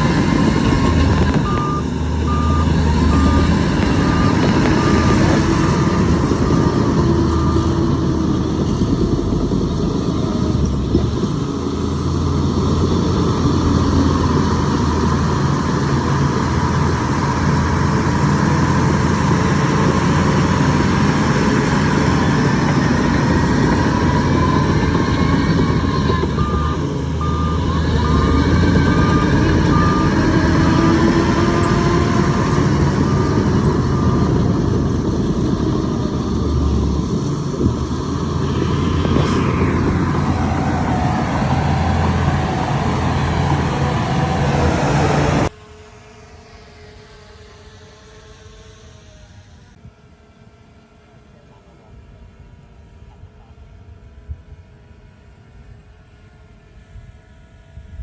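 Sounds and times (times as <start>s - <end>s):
heavy diesel machinery droning: 0.0s - 58.0s
reversing alarm beeping: 0.6s - 8.0s, 23.8s - 34.8s.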